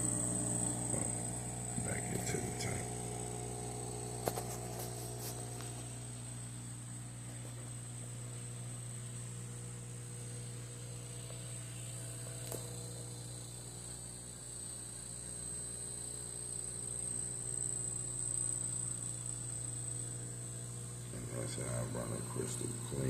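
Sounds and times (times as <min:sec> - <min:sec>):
aquarium pump hum: 0:00.0 - 0:23.0
high steady whine: 0:00.0 - 0:23.0.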